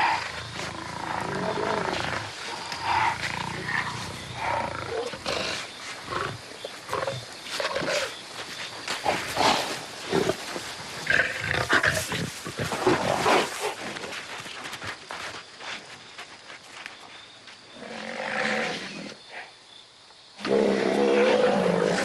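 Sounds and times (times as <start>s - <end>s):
lions growling and snarling: 0.0s - 8.2s, 20.4s - 22.0s.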